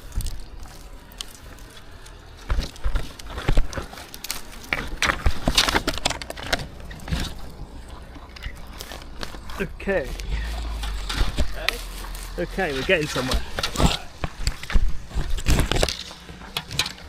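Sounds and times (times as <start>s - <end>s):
rustling and crackling: 0.0s - 17.0s
steady low rumble: 6.3s - 16.6s.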